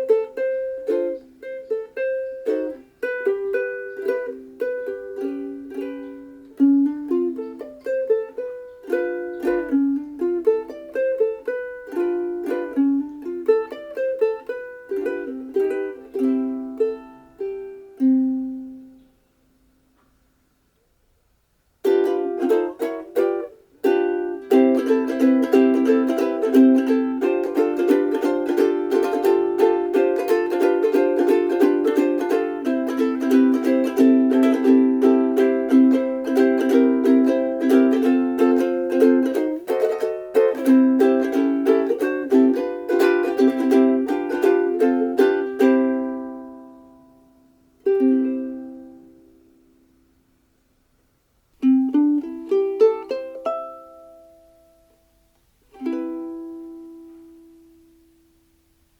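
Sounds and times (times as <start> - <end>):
ukulele strummed chords: 0.0 - 20.2, 21.8 - 50.9, 51.5 - 58.9
ukulele picked melody: 0.0 - 58.9.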